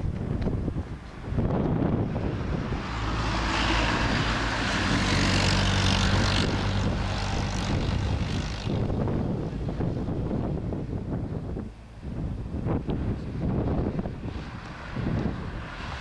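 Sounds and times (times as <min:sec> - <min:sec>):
vehicle passing: 0:01.2 - 0:10.8, 0:13.5 - 0:16.0.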